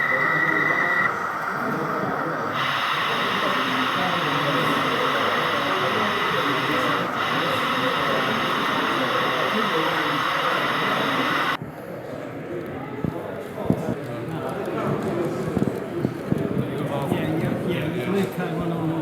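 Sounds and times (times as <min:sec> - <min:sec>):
steady hiss: 0:00.0 - 0:11.6
crowd chatter: 0:00.0 - 0:19.0.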